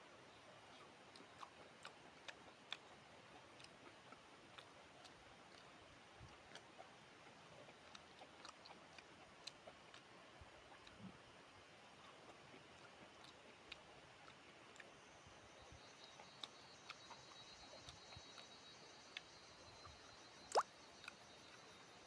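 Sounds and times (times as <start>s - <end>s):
low background hiss: 0.0s - 22.0s
food being chewed: 0.7s - 21.8s.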